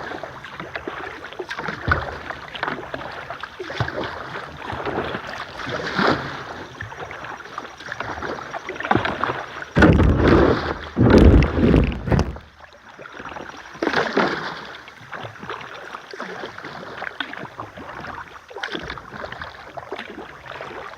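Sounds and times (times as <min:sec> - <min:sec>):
paddle strokes splashing in water: 0:00.0 - 0:20.9
deep rumbling microphone noise: 0:09.8 - 0:12.6.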